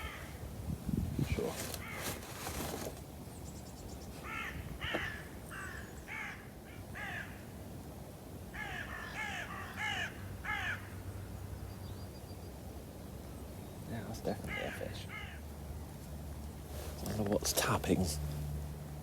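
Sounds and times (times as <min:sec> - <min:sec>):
bird harsh calls: 0:00.0 - 0:00.4, 0:01.8 - 0:02.2, 0:03.6 - 0:07.4, 0:08.6 - 0:11.0, 0:13.8 - 0:15.5.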